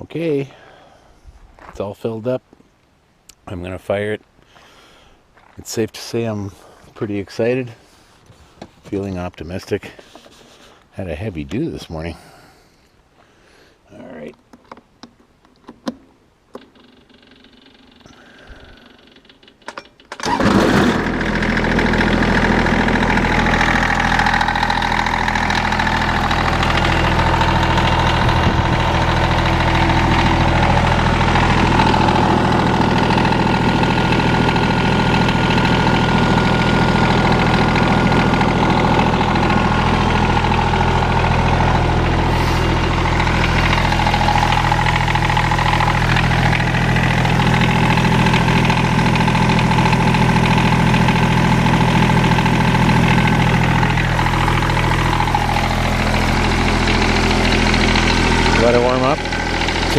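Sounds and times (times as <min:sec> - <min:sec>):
starter cranking diesel engine: 0:16.8 - 0:59.9
diesel engine idling: 0:20.2 - 0:59.9.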